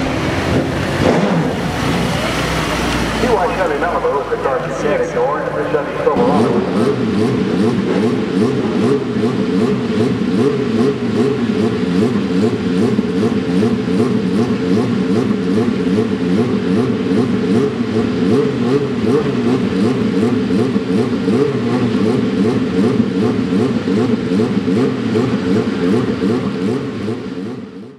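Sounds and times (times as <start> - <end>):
race car engines revving: 0.0 - 27.9.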